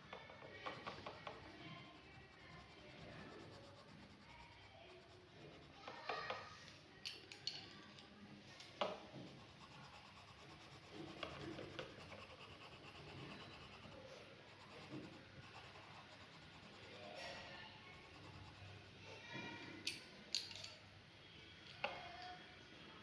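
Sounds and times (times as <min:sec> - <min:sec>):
pencil scratching on paper: 0:00.7 - 0:06.2, 0:09.2 - 0:19.0.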